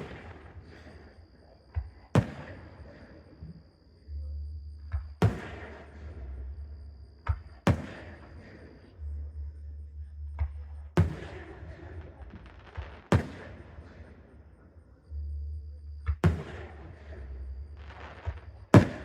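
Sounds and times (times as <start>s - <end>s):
fireworks booming: 0.0s - 1.0s, 1.8s - 3.4s, 5.2s - 6.4s, 7.3s - 8.6s, 11.0s - 14.2s, 16.1s - 19.0s
soft pop: 10.4s - 11.3s.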